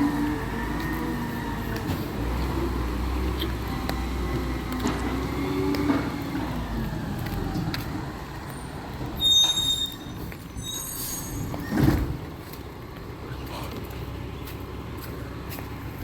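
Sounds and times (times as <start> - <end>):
air brakes squealing: 9.1 - 12.1
truck engine running: 12.1 - 16.0.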